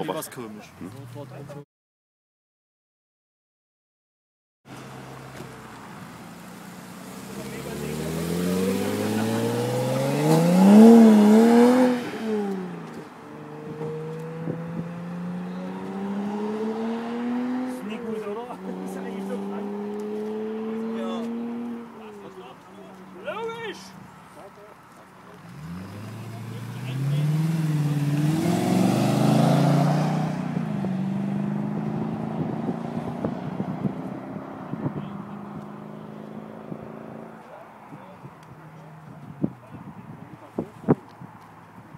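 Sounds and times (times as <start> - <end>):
car engine accelerating: 4.7 - 22.4, 25.3 - 37.6.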